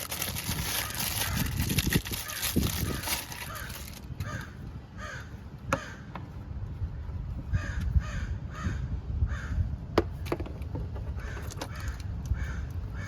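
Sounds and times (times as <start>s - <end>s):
crow cawing: 2.2s - 6.1s, 7.6s - 9.6s, 11.2s - 13.0s.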